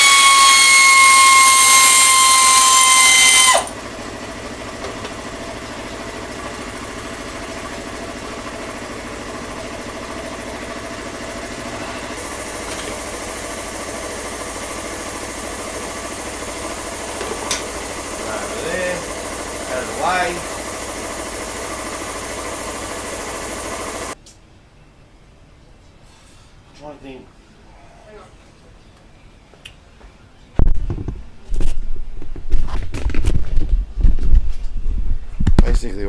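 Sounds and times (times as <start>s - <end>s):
power tool whining: 0.0s - 24.2s
steady mechanical hum: 0.0s - 36.0s.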